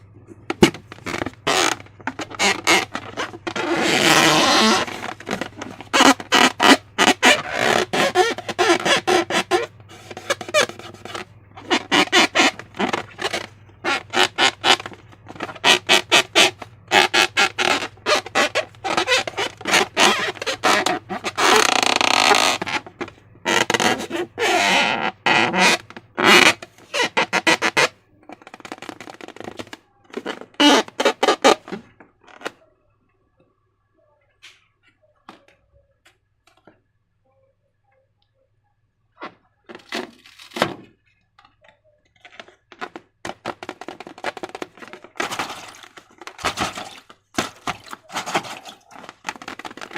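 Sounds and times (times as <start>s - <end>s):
slime squelching by hand: 43.8s - 49.9s.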